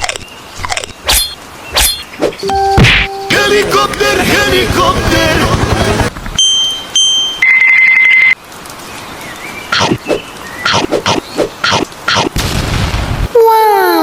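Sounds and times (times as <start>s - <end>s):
high steady beep: 2.4s - 3.9s.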